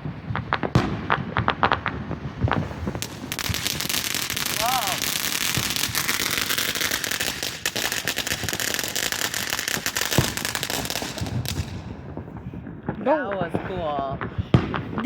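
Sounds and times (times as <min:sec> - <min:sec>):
fireworks crackling and popping: 0:00.0 - 0:15.0.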